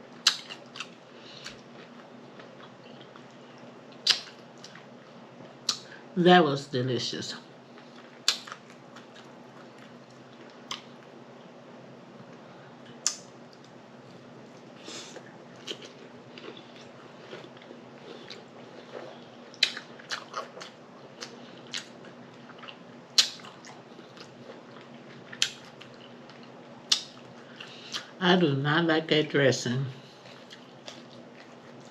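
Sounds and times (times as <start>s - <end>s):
chewing salad: 0.1s - 5.8s, 7.7s - 11.5s, 12.2s - 28.1s, 30.0s - 31.9s
wet mouth smacks: 0.2s - 0.6s, 4.0s - 4.8s, 8.3s - 8.6s, 19.6s - 20.7s, 23.2s - 23.5s, 26.9s - 27.2s.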